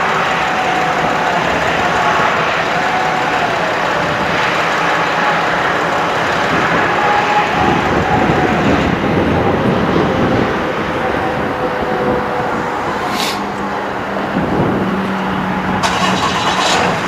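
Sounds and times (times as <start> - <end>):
faint steady tones: 0.0 - 17.0
truck engine running: 0.0 - 17.0
brief hiss: 13.0 - 13.5.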